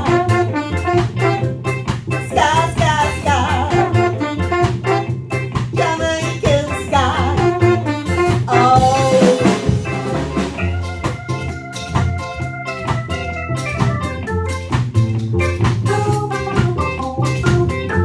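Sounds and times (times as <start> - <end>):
held keyboard chords: 0.0 - 18.0
ska band playing: 0.0 - 18.0
woman singing: 2.3 - 4.2, 5.8 - 9.7.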